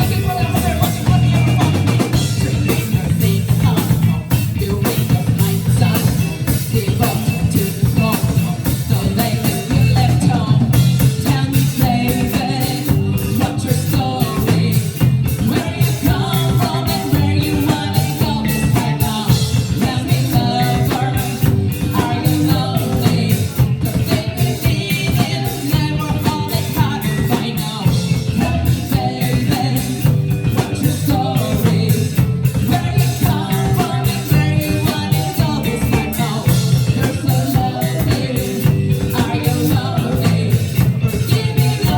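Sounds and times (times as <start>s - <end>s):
bass guitar: 0.0s - 41.9s
drum kit: 0.0s - 41.9s
person singing: 0.0s - 41.9s.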